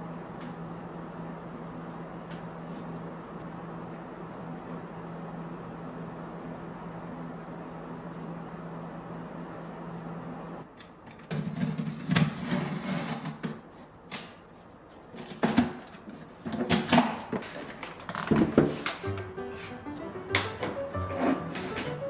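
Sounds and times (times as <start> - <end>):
objects knocking and clattering: 15.2 - 19.2.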